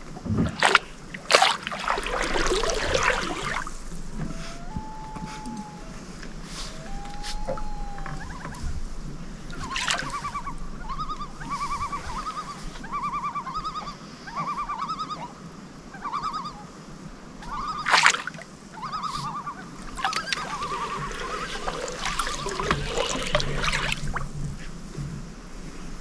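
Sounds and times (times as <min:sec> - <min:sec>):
water splashing: 0:00.0 - 0:04.8, 0:09.4 - 0:11.0, 0:17.7 - 0:18.5, 0:19.8 - 0:24.6
bird wavering call: 0:02.0 - 0:16.7, 0:17.4 - 0:24.2.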